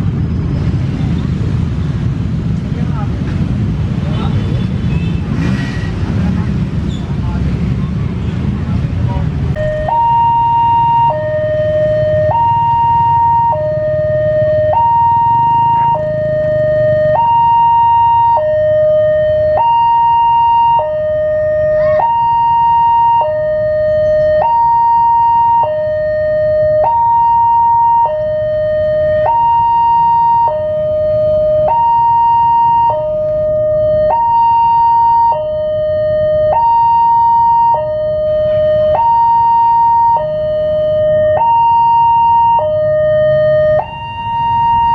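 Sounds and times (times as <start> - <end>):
two-tone crossing warning siren: 9.5 - 44.9.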